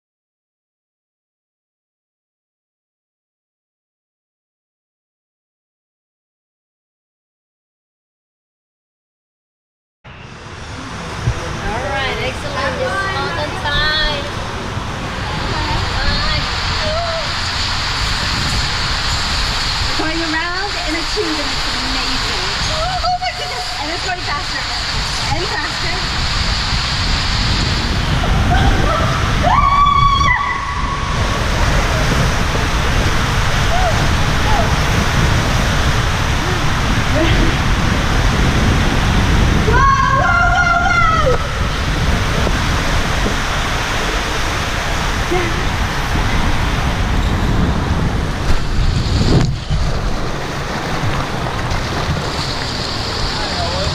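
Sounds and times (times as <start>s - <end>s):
wind noise: 10.1s - 53.9s
water rushing down a slide: 10.8s - 53.9s
high-pitched scream: 28.3s - 31.2s.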